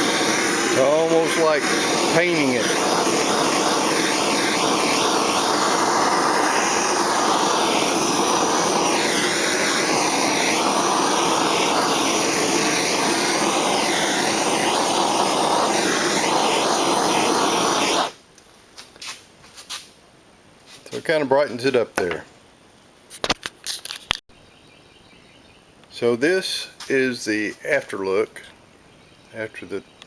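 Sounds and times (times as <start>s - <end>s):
propane torch flame roaring: 0.0s - 18.2s.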